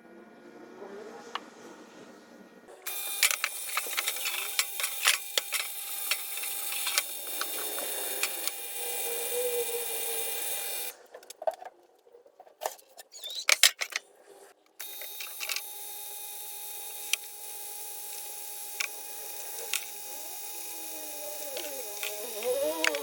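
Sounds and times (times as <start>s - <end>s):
scattered clicks and knocks: 2.9s - 8.7s
electric motor whining: 2.9s - 10.9s, 14.8s - 23.0s.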